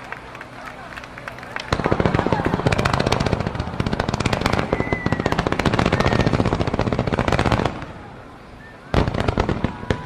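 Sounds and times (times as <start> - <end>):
fireworks cracking: 0.0 - 8.2, 8.9 - 10.0.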